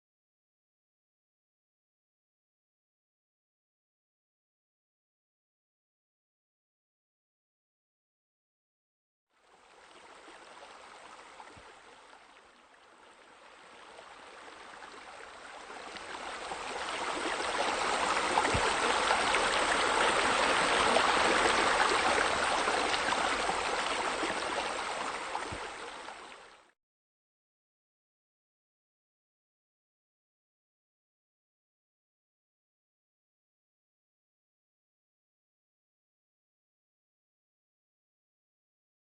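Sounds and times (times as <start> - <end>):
water splashing into a pool: 14.2 - 26.5.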